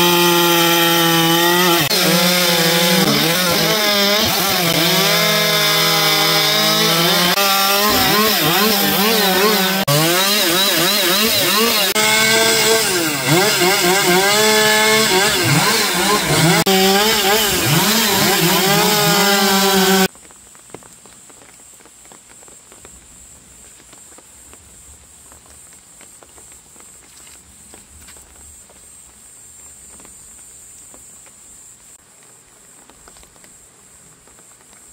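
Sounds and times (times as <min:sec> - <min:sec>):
chainsaw cutting wood: 0:00.0 - 0:20.1
quiet outdoor background: 0:00.0 - 0:34.9.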